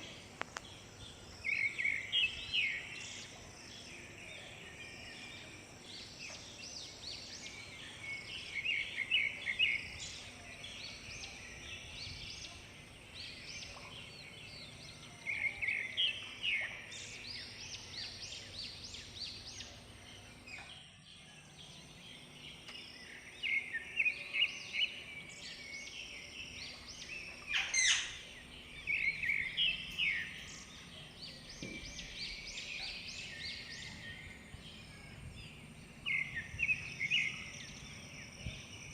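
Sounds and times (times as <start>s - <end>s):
small birds chirping and trilling: 0.0s - 38.9s.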